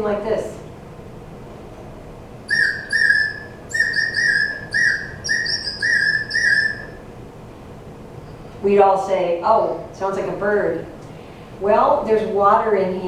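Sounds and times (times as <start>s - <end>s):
water bird whistle warbling: 2.5s - 7.1s.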